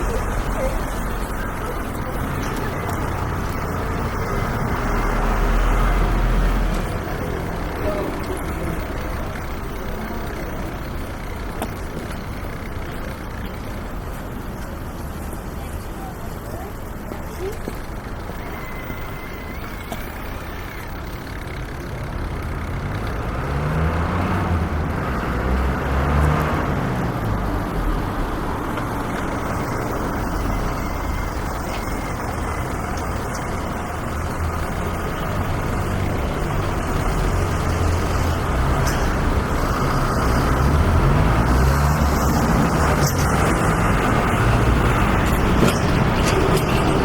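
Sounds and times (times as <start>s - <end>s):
engines speeding up: 0.0s - 14.0s, 17.8s - 47.0s
street traffic rumble: 0.0s - 47.0s.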